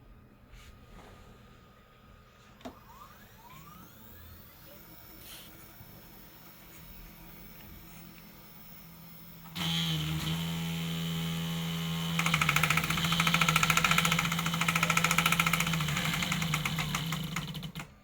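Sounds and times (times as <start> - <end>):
electric motor hum: 2.7 - 17.9.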